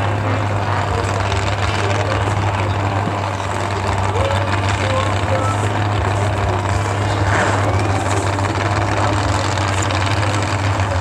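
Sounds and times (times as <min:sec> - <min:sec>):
truck engine low drone: 0:00.0 - 0:11.0.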